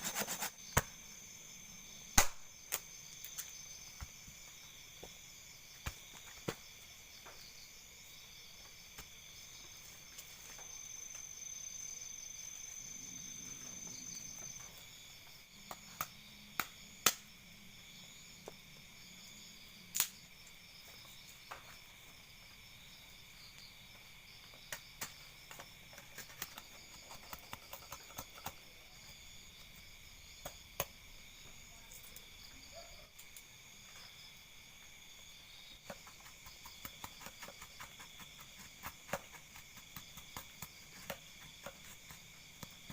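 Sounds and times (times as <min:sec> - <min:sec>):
night insects chorus: 0:00.0 - 0:42.9
sharp clicks and pops: 0:02.1 - 0:03.5, 0:19.9 - 0:20.2.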